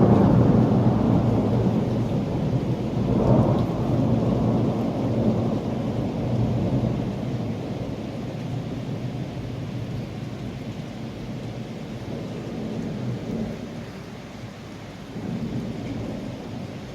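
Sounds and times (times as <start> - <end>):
rolling thunder: 0.0 - 10.1
steady rain: 0.0 - 16.9.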